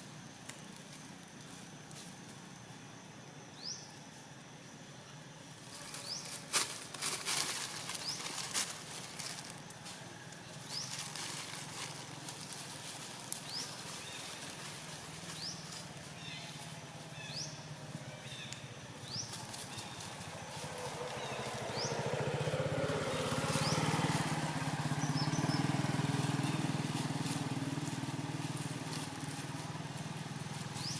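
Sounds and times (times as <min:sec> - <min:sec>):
rustling: 0:05.6 - 0:16.8.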